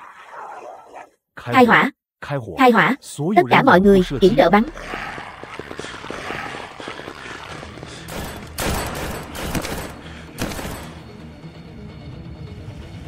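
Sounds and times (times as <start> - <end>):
gunfire: 8.1 - 11.0.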